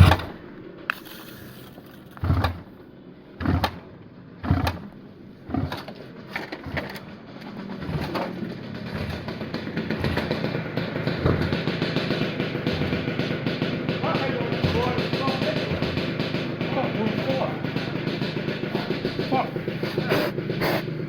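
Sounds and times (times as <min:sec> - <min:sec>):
motorcycle kick-start thuds: 0:00.0 - 0:02.8, 0:03.4 - 0:21.0.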